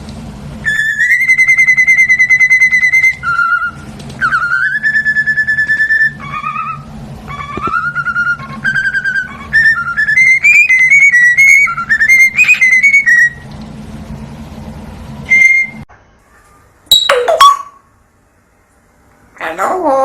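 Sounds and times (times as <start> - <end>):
parrot whistling a tune: 0.6 - 13.4, 15.3 - 15.9.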